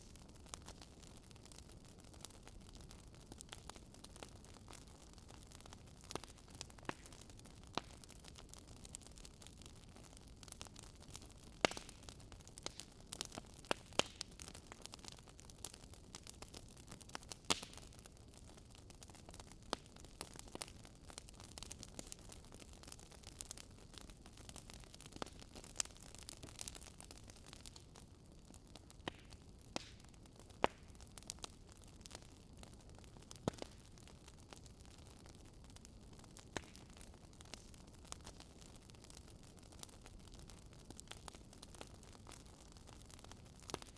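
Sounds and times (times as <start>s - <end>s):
campfire crackling and popping: 0.0s - 43.9s.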